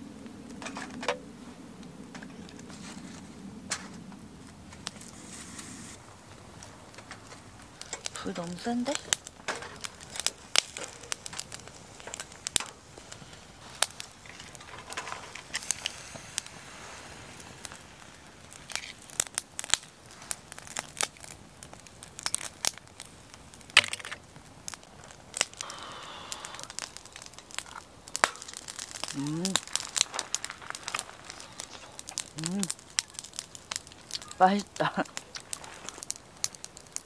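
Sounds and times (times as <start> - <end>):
wood fire crackling and popping: 0.0 - 37.0
oyster shells clicking and scraping: 23.7 - 24.2.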